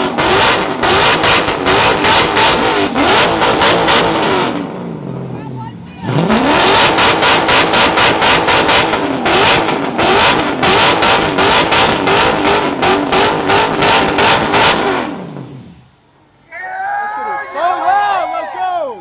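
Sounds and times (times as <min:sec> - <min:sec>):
car engine revving at high revs: 0:00.0 - 0:05.3, 0:06.1 - 0:15.9.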